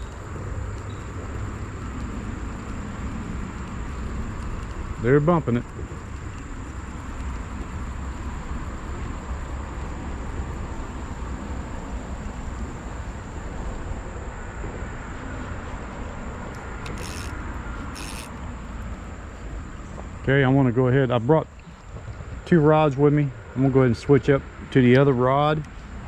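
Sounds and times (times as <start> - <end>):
short hissy bursts: 16.6 - 18.6.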